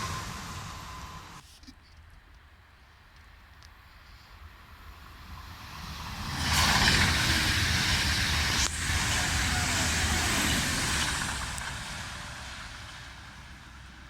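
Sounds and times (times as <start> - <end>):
train passing by: 0.0 - 1.4, 4.6 - 14.0.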